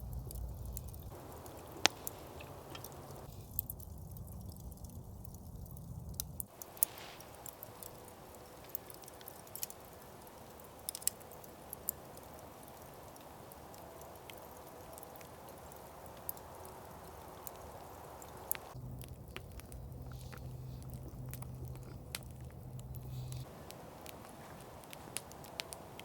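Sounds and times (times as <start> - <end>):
campfire crackling: 0.0 - 26.0
fire popping and snapping: 0.0 - 26.0.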